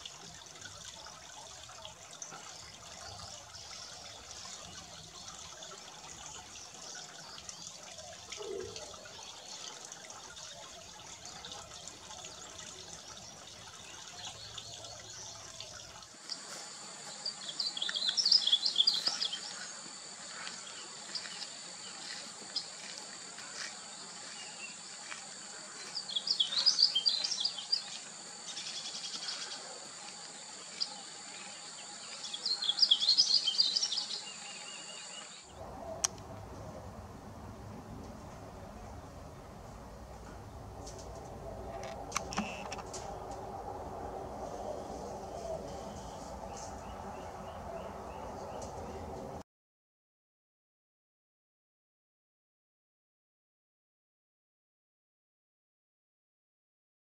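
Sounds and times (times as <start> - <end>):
faint trickle of water: 0.0 - 31.4
bird singing warbled phrases: 17.2 - 19.6, 25.8 - 29.6, 32.1 - 35.3.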